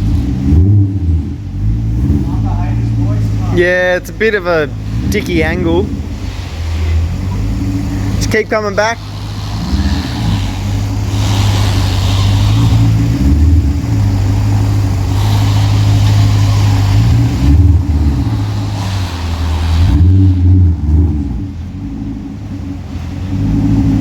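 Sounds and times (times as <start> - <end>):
car engine revving at low revs: 0.0 - 24.0.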